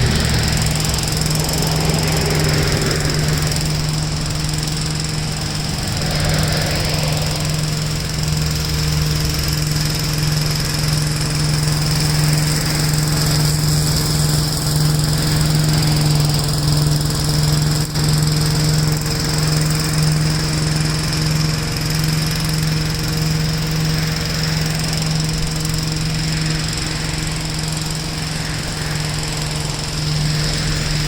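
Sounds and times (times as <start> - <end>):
high whine: 0.0 - 14.4, 23.5 - 31.0
tractor engine running: 0.0 - 31.0.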